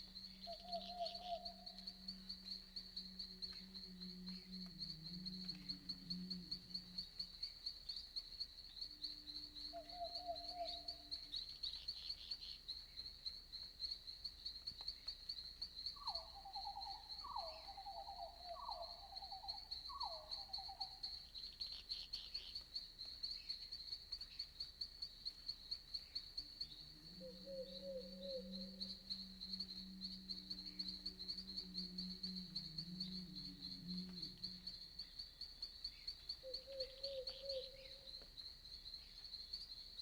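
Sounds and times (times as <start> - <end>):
low pulsed animal calls: 0.0 - 7.4, 26.5 - 35.4
crickets chirping: 0.0 - 40.0.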